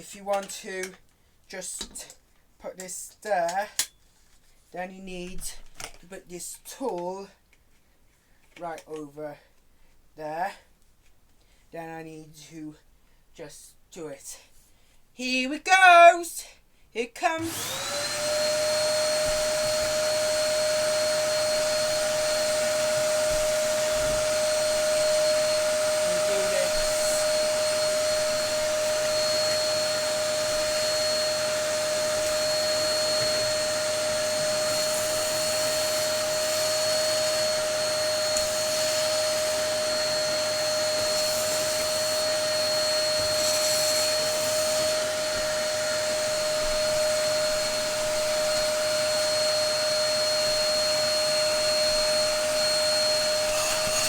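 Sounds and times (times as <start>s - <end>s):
upright vacuum cleaner running: 17.4s - 54.0s.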